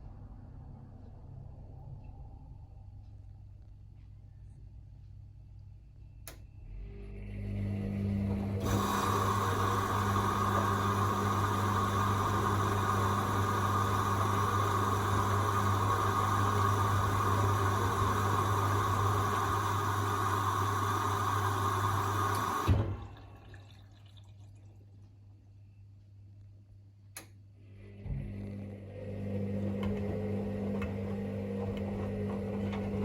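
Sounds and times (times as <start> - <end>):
washing machine taking in water: 7.6 - 25.1, 28.0 - 33.0
washing machine clunk: 22.3 - 23.4.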